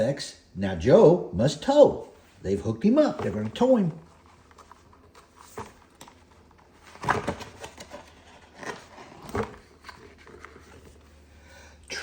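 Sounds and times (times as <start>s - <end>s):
book pages rustling: 3.0s - 11.4s.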